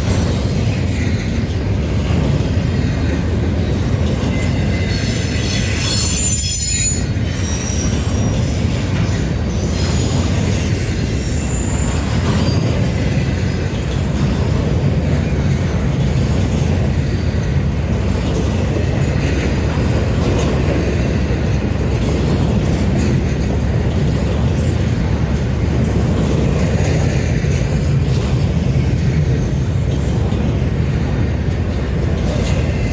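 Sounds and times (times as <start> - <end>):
train wheels rumbling on rails: 0.0 - 32.9
wheel squeal: 4.2 - 13.0.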